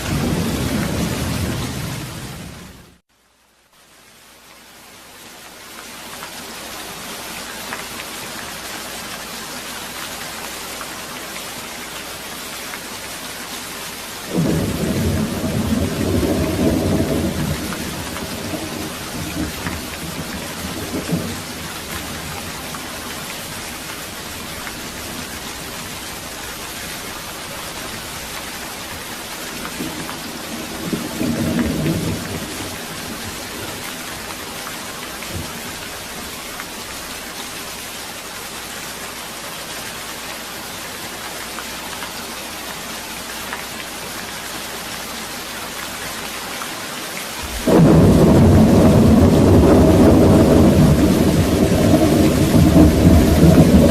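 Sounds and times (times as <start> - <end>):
steady rain falling: 0.0 - 53.9
thunder rumbling: 14.3 - 29.0, 29.6 - 33.8, 47.4 - 53.9.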